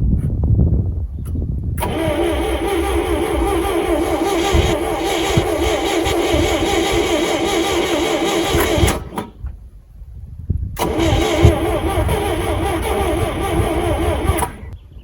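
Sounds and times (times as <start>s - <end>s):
starter motor cranking engine: 1.8s - 9.5s, 10.8s - 14.8s.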